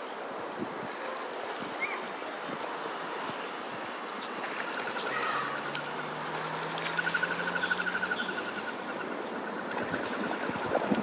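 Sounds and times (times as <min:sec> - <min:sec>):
wind noise on microphone: 0:00.0 - 0:11.0
bird trilling: 0:04.6 - 0:10.8.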